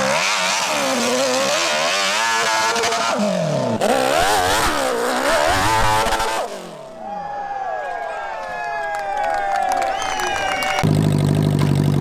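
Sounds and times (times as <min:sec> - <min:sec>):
motorcycle engine revving: 0:00.0 - 0:06.9, 0:10.7 - 0:12.0.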